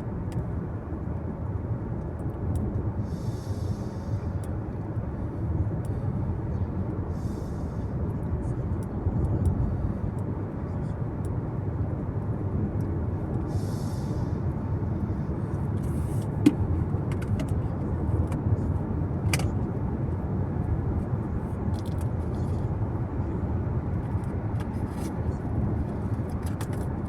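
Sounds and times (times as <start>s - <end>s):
car road noise: 0.0s - 27.0s.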